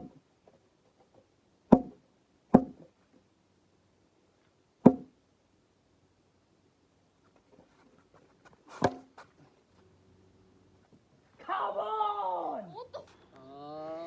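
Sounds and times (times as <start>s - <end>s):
ball striking bat: 1.7s - 2.0s, 2.6s - 2.8s, 4.9s - 5.1s, 8.8s - 9.1s.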